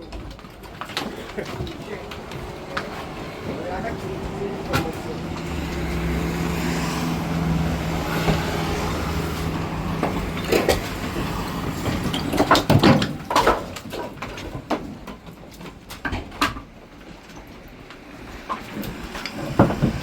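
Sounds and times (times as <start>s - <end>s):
irregular knocks and clatters: 0.0s - 20.0s
truck engine running: 0.4s - 13.8s.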